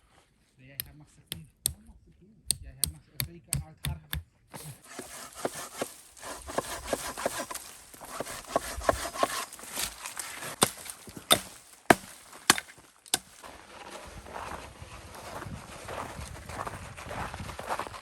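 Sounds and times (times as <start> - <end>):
wood chopping knocks: 2.5 - 5.9, 6.5 - 13.4
footsteps crunching: 4.5 - 18.0.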